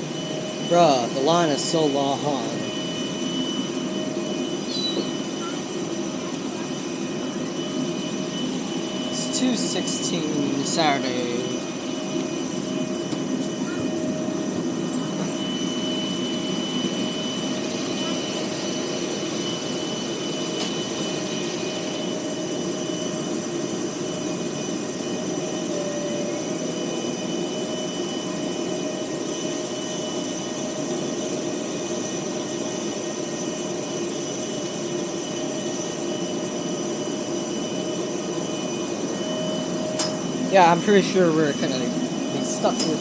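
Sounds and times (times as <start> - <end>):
airliner jet turbine drone: 0.0 - 43.0.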